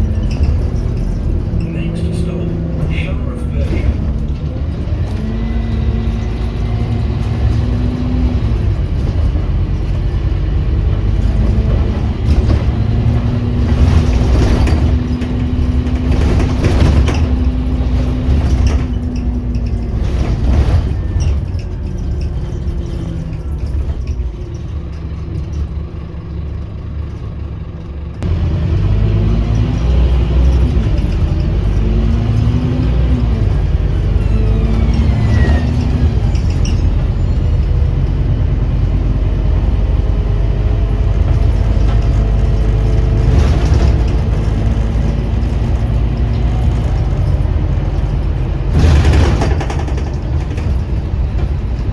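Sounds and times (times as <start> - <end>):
bus diesel engine shifting gears: 0.0 - 51.9.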